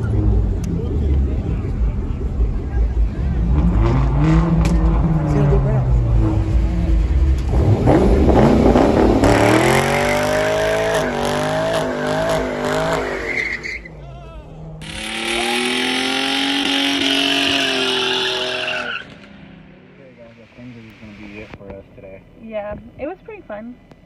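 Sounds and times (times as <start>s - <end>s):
car engine revving hard: 3.2s - 13.4s, 14.8s - 21.5s
tires squealing and skidding: 9.9s - 14.0s, 14.8s - 19.7s.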